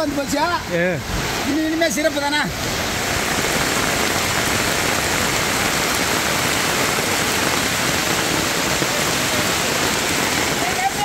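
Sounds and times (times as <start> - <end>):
loud rainfall: 0.0 - 11.0.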